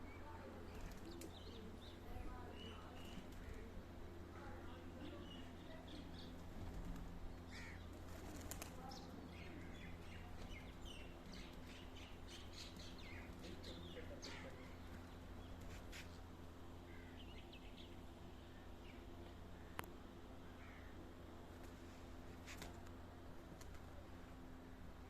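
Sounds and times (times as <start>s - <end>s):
steady low hum: 0.0s - 25.0s
birds chirping: 7.2s - 19.9s.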